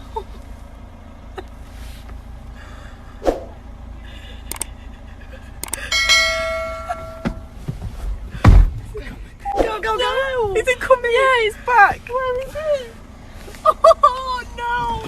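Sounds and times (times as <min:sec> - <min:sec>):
metallic bell-like ring: 0:05.9 - 0:07.5
sharp knocks: 0:06.1 - 0:07.5.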